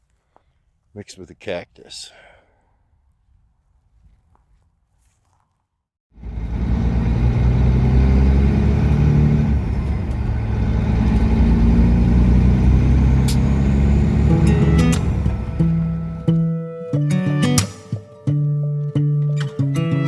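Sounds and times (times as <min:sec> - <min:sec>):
diesel truck engine droning: 0:06.2 - 0:16.5.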